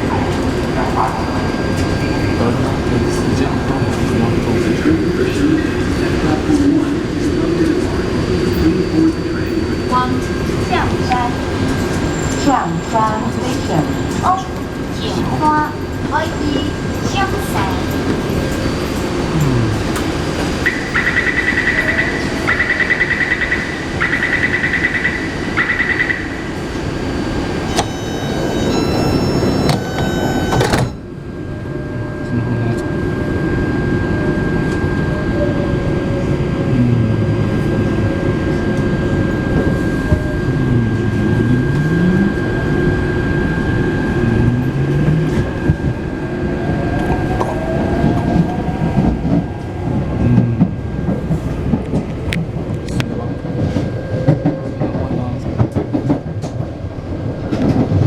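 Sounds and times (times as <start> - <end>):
train traction motor humming: 0.1 - 20.7, 26.2 - 53.8
sliding doors shutting: 27.5 - 31.0
door warning beeps: 27.6 - 31.0
stepped chime: 27.7 - 31.0.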